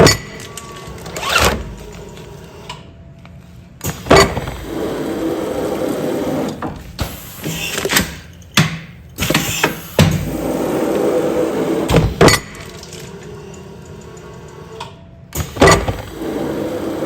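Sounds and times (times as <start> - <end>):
mechanical whirr: 0.0 - 2.9, 9.2 - 17.0
machine hum: 9.0 - 17.0
sealing machine clunks: 15.4 - 16.2.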